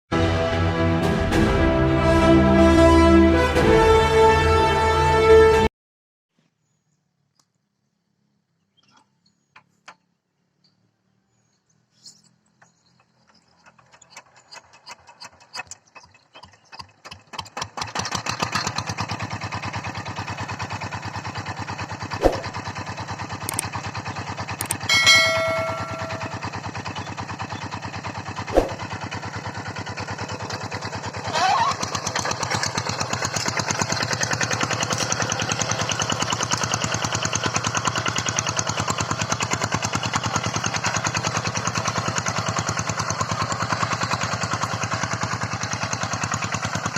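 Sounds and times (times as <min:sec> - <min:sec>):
tractor engine starting and running: 0:00.1 - 0:05.6, 0:12.0 - 0:46.9
sharp clicks: 0:23.5 - 0:23.8, 0:24.6 - 0:24.9
short pitched tone: 0:24.7 - 0:26.6.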